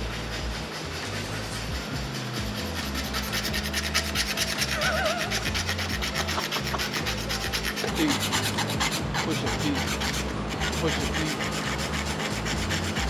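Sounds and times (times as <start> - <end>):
rapid rasping strokes: 0.0 - 13.0.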